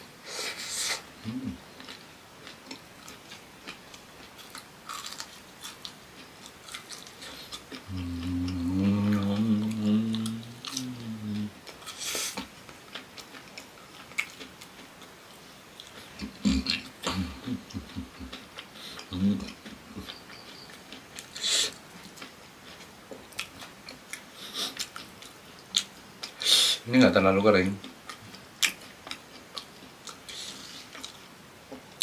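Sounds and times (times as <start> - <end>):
breath hiss: 0.2 - 1.5, 11.9 - 12.4, 21.4 - 21.8, 24.3 - 24.8, 26.4 - 26.9, 30.3 - 30.9
person humming: 1.2 - 1.6, 7.9 - 11.6, 19.1 - 19.6
crunchy food chewing: 1.3 - 26.4, 27.8 - 32.0.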